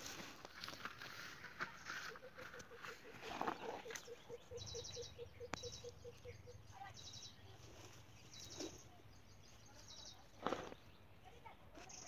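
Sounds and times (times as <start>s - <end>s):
soft rustle: 0.0s - 4.0s, 7.4s - 9.0s.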